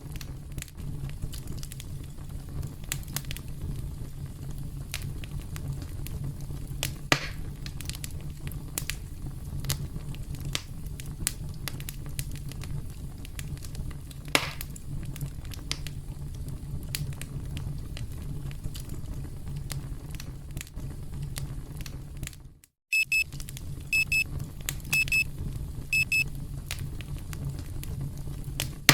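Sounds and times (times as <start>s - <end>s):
campfire crackling: 0.0s - 22.4s, 23.1s - 28.9s
burning wood popping: 0.0s - 22.5s, 23.2s - 28.9s
electronic alarm beeping: 22.9s - 23.2s, 24.0s - 24.2s, 24.9s - 25.2s, 26.0s - 26.2s.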